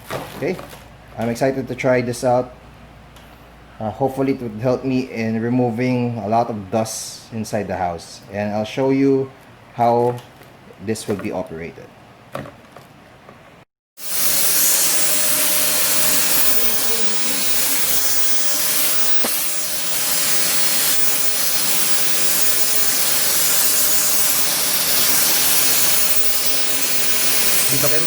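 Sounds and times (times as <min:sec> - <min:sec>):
vacuum cleaner running: 0:14.0 - 0:28.0.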